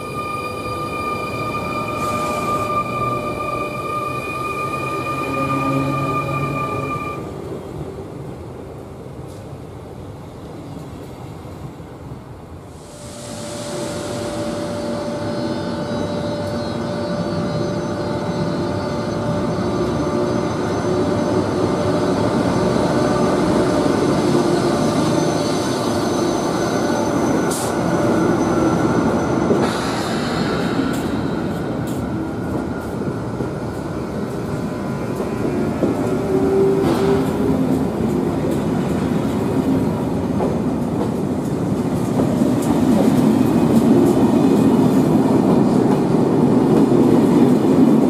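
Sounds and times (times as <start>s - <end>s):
locomotive whining tones: 0.0s - 7.4s, 13.0s - 39.6s
train rumble: 0.0s - 48.0s.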